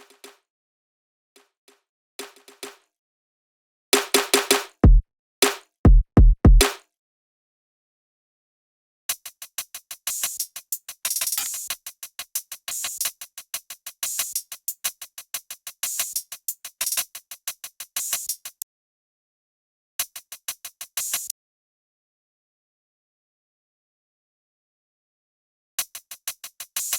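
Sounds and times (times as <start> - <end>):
deep kick drum hits: 4.8 - 5.0, 5.9 - 6.6
fast electronic drum loop: 4.8 - 5.0, 5.9 - 6.7.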